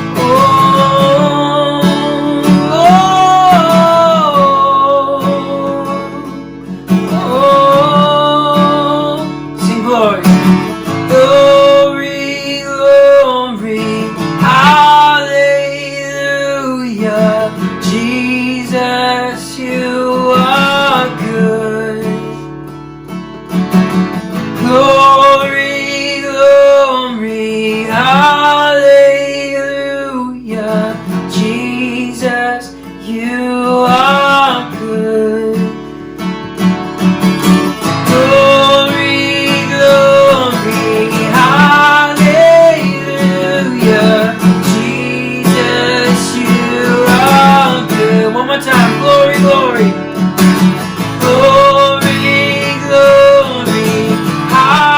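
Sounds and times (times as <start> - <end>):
person singing: 0.0 - 22.5, 24.6 - 36.0, 37.4 - 54.9
strummed acoustic guitar: 0.0 - 54.9.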